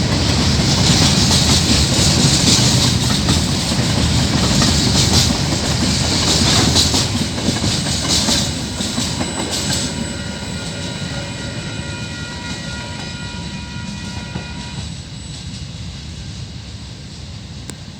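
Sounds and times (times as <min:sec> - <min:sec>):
train wheels clacking over rail joints: 0:00.0 - 0:10.8.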